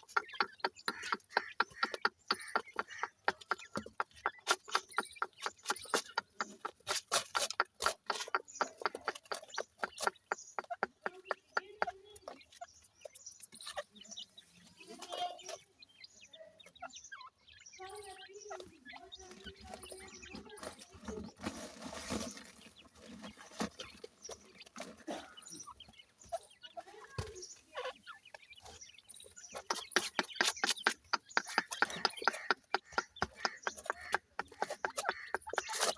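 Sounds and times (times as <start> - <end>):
chicks clucking and chirping: 0.0 - 35.9
sharp taps: 0.1 - 12.3, 29.6 - 35.9.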